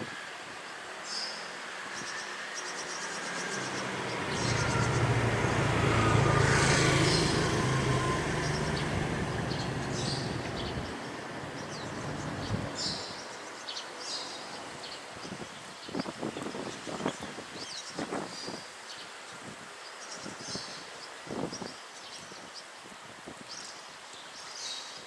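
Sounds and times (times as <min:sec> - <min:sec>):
vehicle passing by: 0:02.4 - 0:13.1.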